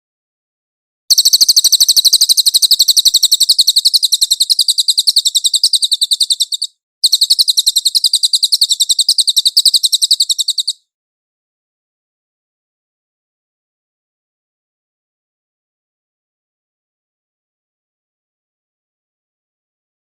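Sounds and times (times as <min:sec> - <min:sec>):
bird trilling high notes: 0:01.1 - 0:10.8.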